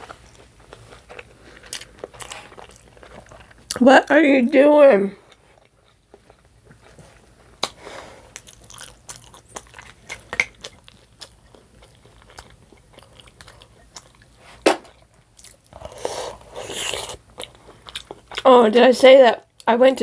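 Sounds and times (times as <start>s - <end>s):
biting and chewing: 0.0s - 3.8s, 5.2s - 18.5s.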